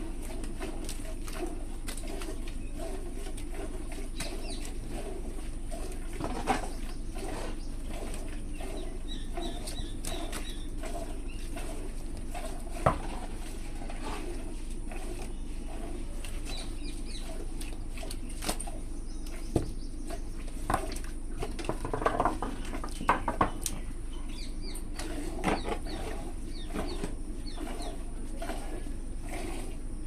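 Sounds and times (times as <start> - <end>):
steady low hum: 0.0 - 30.0
small birds chirping: 4.0 - 12.0, 14.9 - 21.6, 22.4 - 29.2
sharp knocks and clatters: 21.5 - 23.7.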